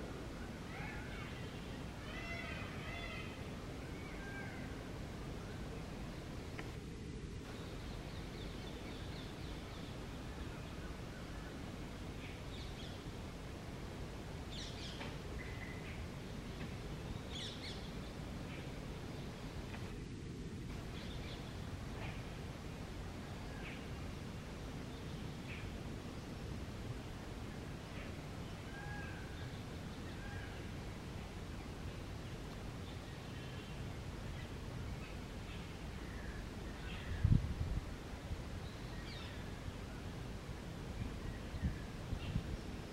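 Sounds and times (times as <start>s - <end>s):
faint bird calls: 0.0s - 5.9s, 27.8s - 31.0s
low background noise: 0.0s - 42.9s
low outdoor rumble: 0.0s - 42.9s.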